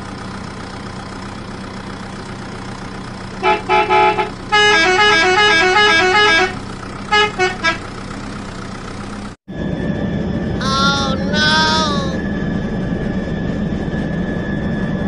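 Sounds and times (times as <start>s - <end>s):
whirr with high whine: 12.2s - 15.0s.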